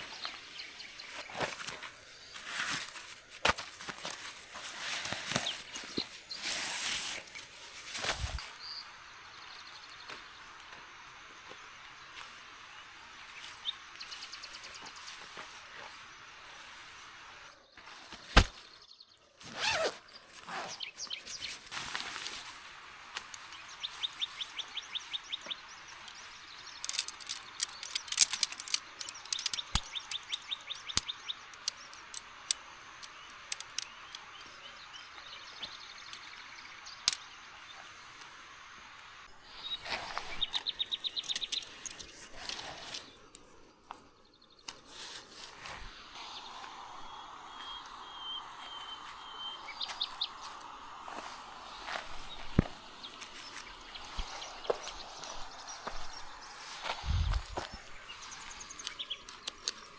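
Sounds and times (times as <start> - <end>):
outdoor background hiss: 0.0 - 59.9
songbird trilling: 23.7 - 37.3
brief rustling: 26.8 - 30.2
sharp clicks: 26.8 - 34.5.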